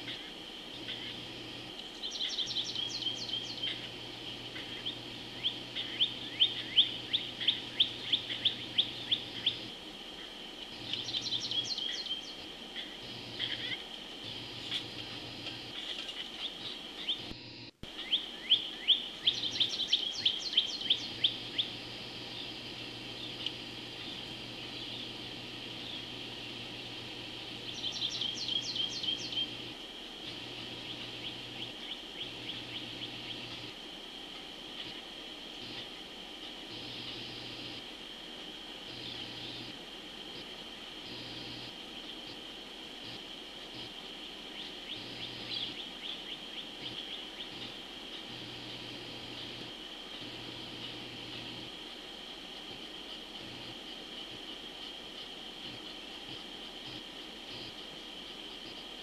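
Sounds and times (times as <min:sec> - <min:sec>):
birds chirping: 0:00.0 - 0:33.8, 0:38.9 - 0:51.7
constant high hum: 0:00.0 - 0:59.0
insects trilling: 0:00.0 - 0:59.0.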